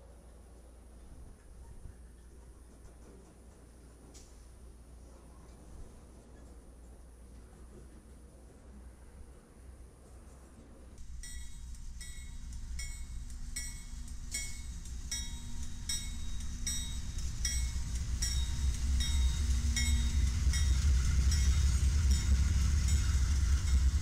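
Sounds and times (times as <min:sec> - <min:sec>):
diesel locomotives rumbling: 0:00.0 - 0:24.0
locomotive bell ringing: 0:11.0 - 0:24.0.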